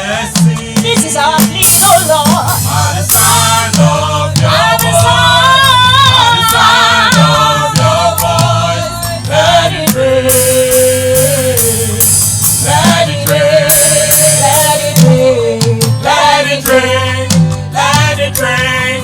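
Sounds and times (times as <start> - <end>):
gospel band playing: 0.0 - 19.0
tambourine strokes: 9.8 - 15.2.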